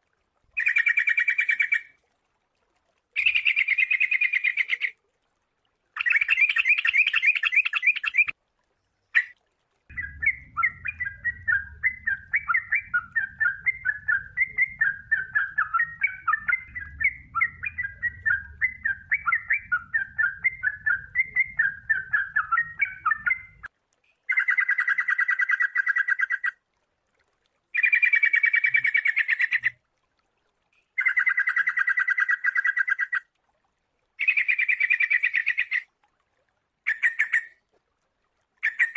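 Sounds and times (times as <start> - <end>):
bird song: 0.6 - 1.9, 3.2 - 4.9, 6.0 - 23.7, 24.3 - 26.5, 27.8 - 29.8, 31.0 - 33.2, 34.2 - 35.8, 36.9 - 37.6, 38.6 - 38.9
faint low hum: 8.6 - 23.7.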